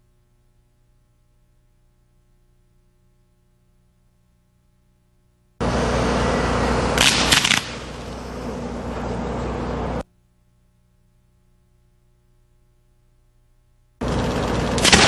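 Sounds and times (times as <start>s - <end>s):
sharp firework cracks: 7.0s - 8.1s, 14.7s - 15.0s.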